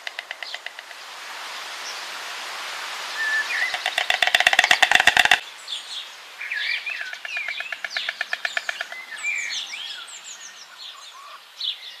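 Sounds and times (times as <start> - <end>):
rapid rattling bird notes: 0.0 - 1.0, 3.6 - 5.4
small birds chirping: 3.1 - 12.0.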